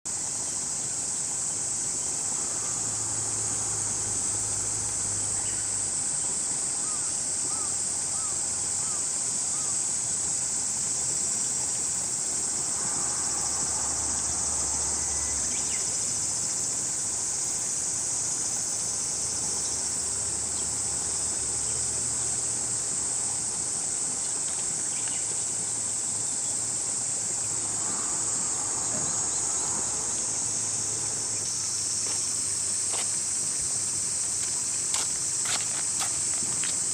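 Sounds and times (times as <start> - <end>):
cicadas singing: 0.1 - 36.9.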